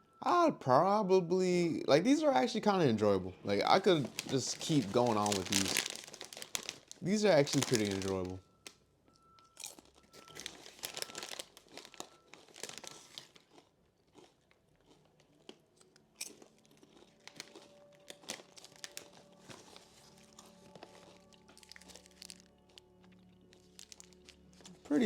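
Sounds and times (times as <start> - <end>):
faint background music: 0.0 - 25.0
chewing potato chips: 3.5 - 8.4, 9.5 - 25.0.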